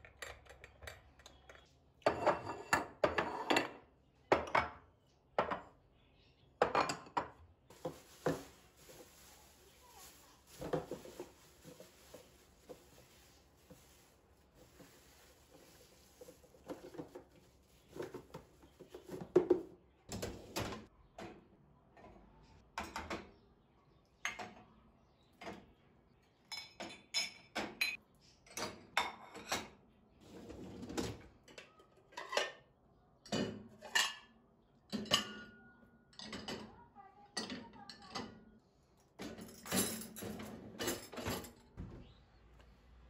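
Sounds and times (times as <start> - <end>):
dishes and cutlery clinking: 0.0 - 5.8, 6.6 - 8.5, 26.4 - 29.8, 31.5 - 36.8, 39.2 - 41.6.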